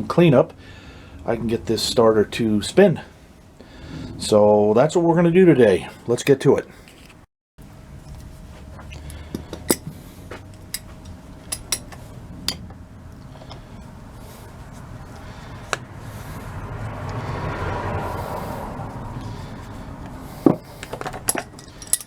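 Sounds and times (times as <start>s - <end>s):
metal tools clinking: 9.3s - 10.0s, 10.7s - 12.7s, 20.4s - 22.0s.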